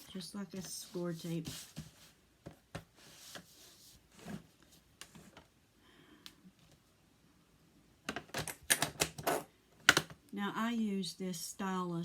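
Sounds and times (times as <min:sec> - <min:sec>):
faint taps and rustles: 0:00.6 - 0:03.6.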